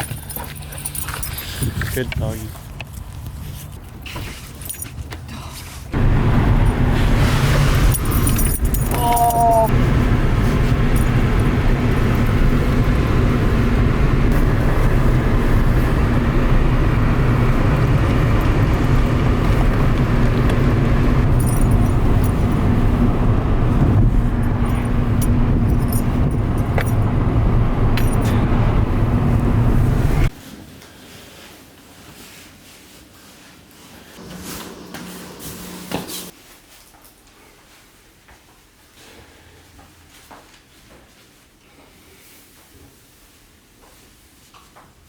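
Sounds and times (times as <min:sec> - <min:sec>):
road and engine rumble in car: 0:00.0 - 0:04.2, 0:05.8 - 0:30.4.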